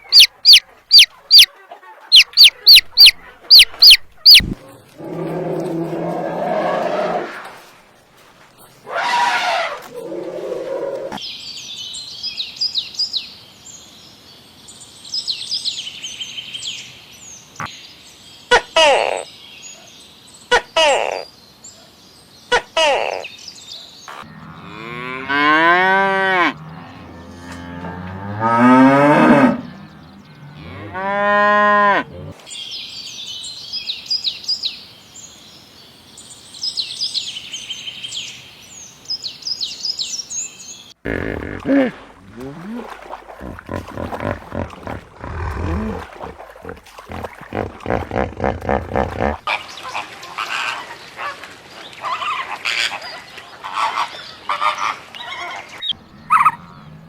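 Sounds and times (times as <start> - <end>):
faint birds chirping: 0.0 - 6.9, 32.0 - 50.0, 53.7 - 57.0
cow mooing: 5.0 - 7.2, 24.3 - 32.4, 41.1 - 49.4, 56.0 - 57.0.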